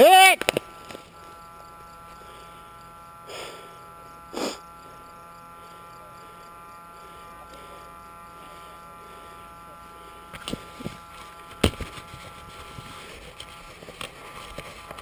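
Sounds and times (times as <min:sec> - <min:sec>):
faint electrical buzz: 0:00.0 - 0:15.0
breathy puffs: 0:03.3 - 0:04.8.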